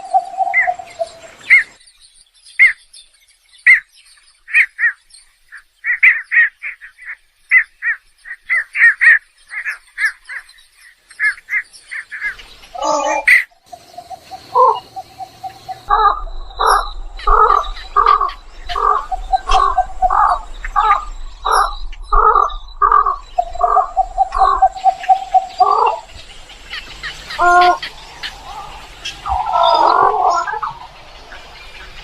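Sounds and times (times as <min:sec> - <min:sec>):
egret calling: 0:12.8 - 0:26.1, 0:27.3 - 0:30.8.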